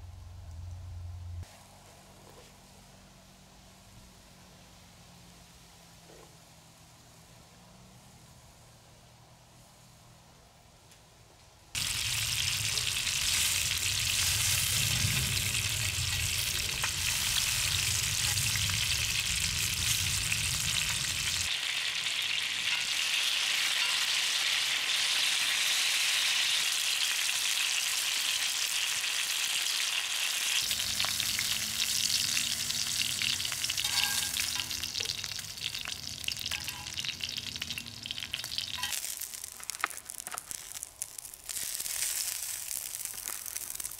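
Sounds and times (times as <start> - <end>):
food sizzling in a pan: 11.8 - 43.9.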